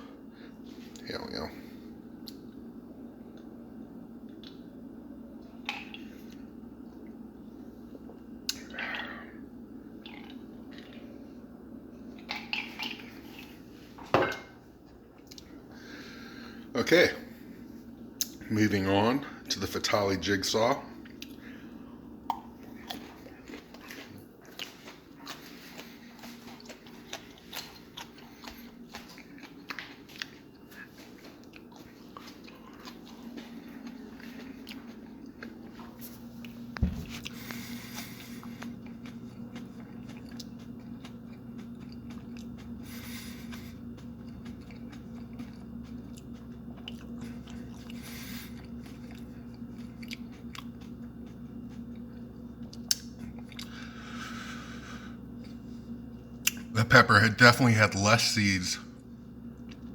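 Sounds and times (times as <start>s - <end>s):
crunching bites and chewing: 22.2s - 54.0s.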